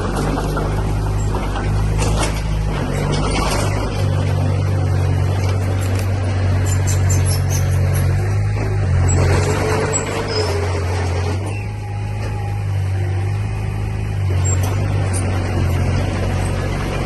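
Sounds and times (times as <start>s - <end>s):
heavy diesel machinery engine: 0.0s - 17.0s.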